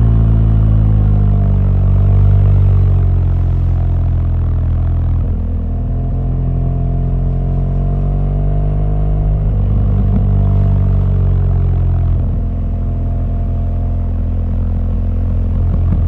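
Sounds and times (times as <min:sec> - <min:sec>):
motorcycle engine running: 0:09.2 - 0:16.0.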